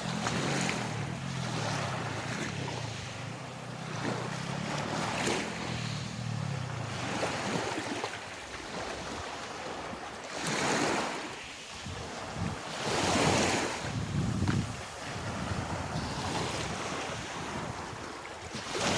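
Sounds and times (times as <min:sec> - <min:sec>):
sea water splashing: 0:00.0 - 0:18.9
wind buffeting microphone: 0:11.7 - 0:18.9.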